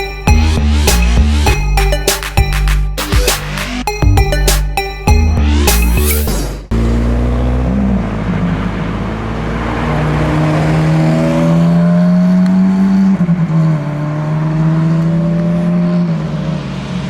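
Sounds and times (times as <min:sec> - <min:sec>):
car engine accelerating: 0:05.4 - 0:17.0.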